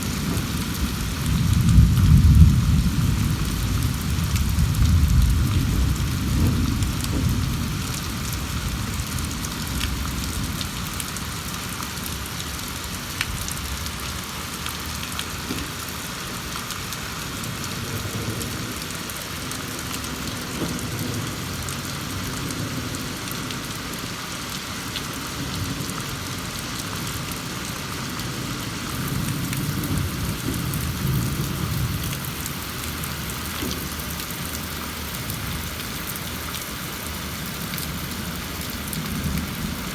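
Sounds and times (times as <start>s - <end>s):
thunder rumbling: 0.0s - 10.7s, 28.4s - 36.0s
steady rain: 0.0s - 39.9s.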